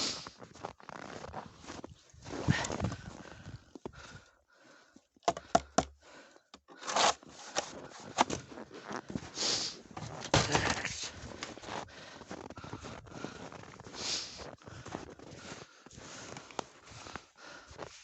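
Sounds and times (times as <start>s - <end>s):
footsteps crunching in snow: 6.8s - 18.0s.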